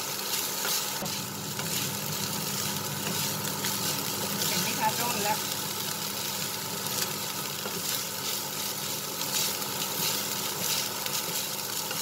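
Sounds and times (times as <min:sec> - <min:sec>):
meat sizzling in a frying pan: 0:00.0 - 0:12.0
wooden spatulas scraping a pan: 0:02.6 - 0:04.8, 0:09.3 - 0:12.0.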